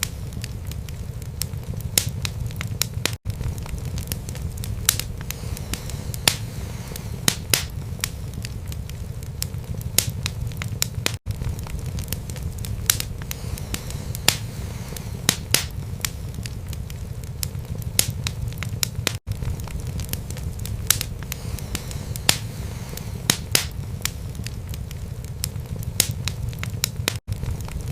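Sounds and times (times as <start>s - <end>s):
low rumble of flames: 0.0s - 27.9s
wood crackling and popping: 0.0s - 27.9s.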